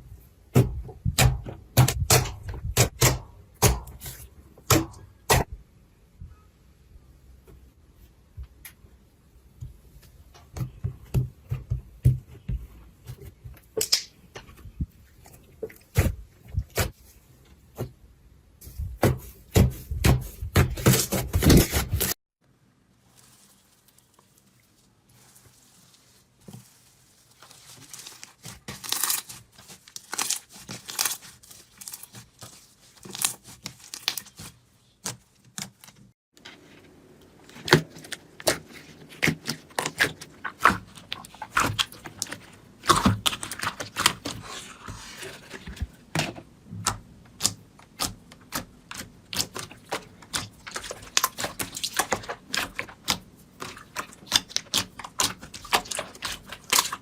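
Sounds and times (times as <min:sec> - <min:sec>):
slime crackling and popping: 0:47.4 - 0:57.0.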